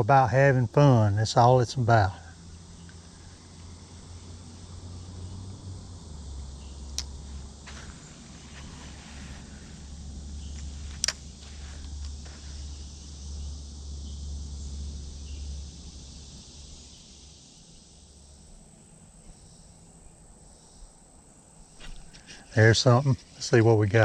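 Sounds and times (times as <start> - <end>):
insects chirring: 0.0 - 24.0
sharp click: 10.6 - 11.2.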